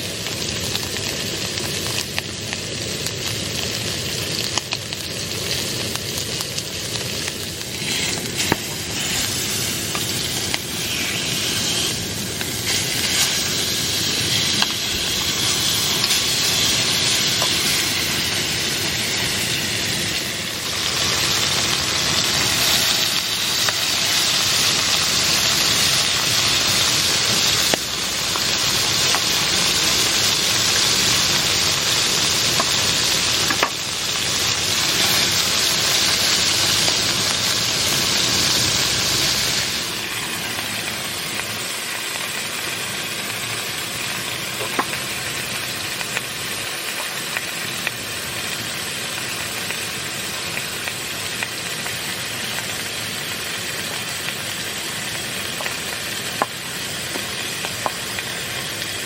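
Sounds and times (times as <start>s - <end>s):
steady rain hissing: 0.0s - 59.0s
sharp ticks of raindrops: 53.4s - 59.0s.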